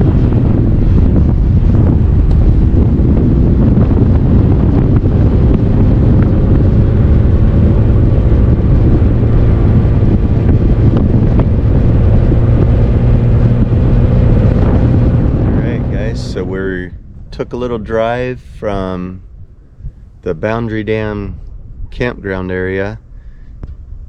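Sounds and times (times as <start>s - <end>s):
engine and road noise: 0.0s - 24.0s
wind buffeting microphone: 0.0s - 24.0s.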